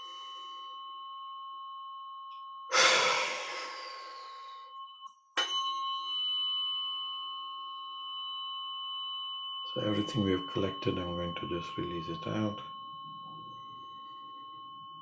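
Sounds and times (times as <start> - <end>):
ringing metal chime: 0.0 - 15.0
forceful exhale: 2.7 - 4.7.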